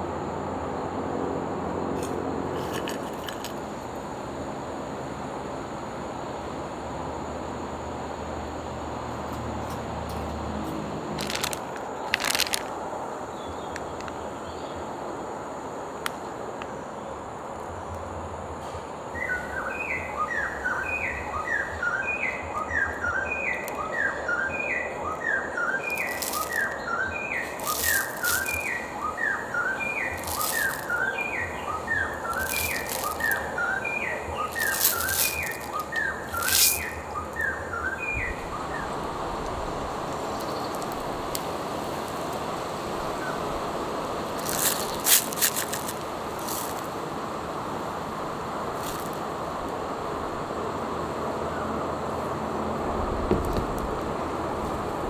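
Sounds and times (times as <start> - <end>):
steady background hiss: 0.0 - 55.0
snack packaging crinkling: 11.2 - 12.8, 25.9 - 26.8, 27.4 - 28.8, 30.1 - 31.0, 32.2 - 33.5, 34.4 - 37.0, 44.4 - 46.9.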